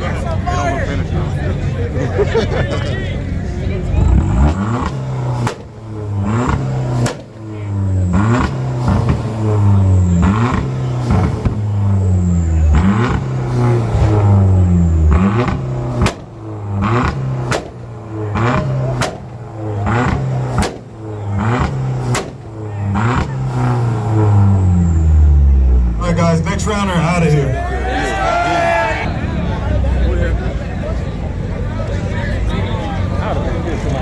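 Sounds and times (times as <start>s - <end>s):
car engine revving: 0.0s - 34.0s
exhaust pops: 4.0s - 26.7s.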